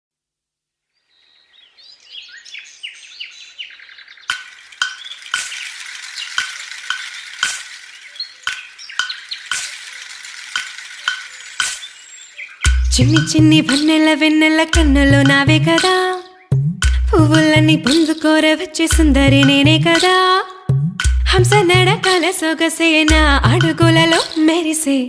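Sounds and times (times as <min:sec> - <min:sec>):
birds chirping: 0:01.0 - 0:22.4
crackling hiss: 0:02.3 - 0:14.0
sharp clicks: 0:04.2 - 0:12.1, 0:13.1 - 0:14.0.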